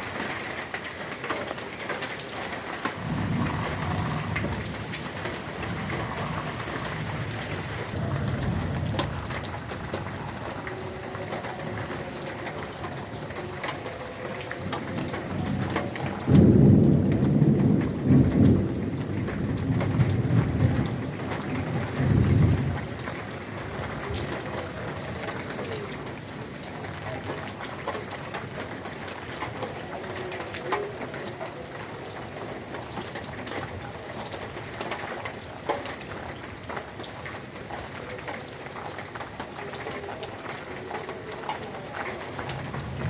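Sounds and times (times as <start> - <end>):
heavy rain falling: 0.0 - 43.0
thunder rumbling: 2.8 - 11.0, 14.4 - 24.2, 42.2 - 43.0.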